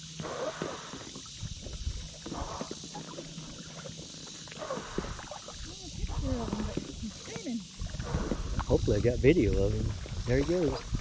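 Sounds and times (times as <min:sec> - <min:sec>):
water splashing and dripping: 0:00.0 - 0:11.0
wind rumbling on microphone: 0:01.2 - 0:03.6, 0:04.7 - 0:11.0.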